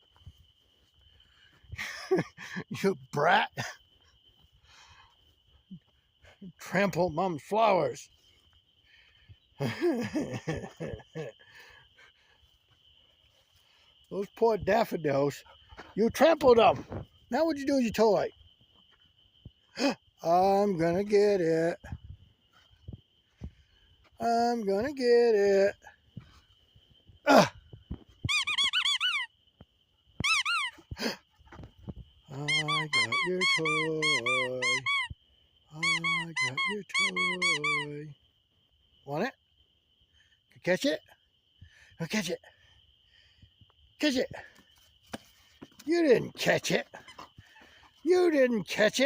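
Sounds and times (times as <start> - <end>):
man's voice: 2.6 - 3.8, 6.4 - 8.1, 16.0 - 18.3, 19.8 - 21.9, 24.2 - 25.8, 32.3 - 34.9, 35.8 - 38.1, 45.9 - 46.9, 48.0 - 49.0
squeaky dog toy squeaking: 28.3 - 29.3, 30.2 - 30.8, 32.5 - 35.1, 35.8 - 37.9.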